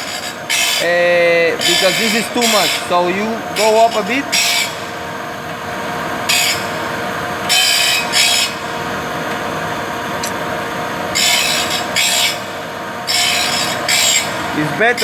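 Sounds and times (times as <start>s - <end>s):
saw teeth grinding: 0.0s - 4.9s, 6.3s - 6.9s, 7.5s - 8.6s, 11.1s - 12.5s, 13.1s - 14.4s
machine motor hum: 0.0s - 15.0s.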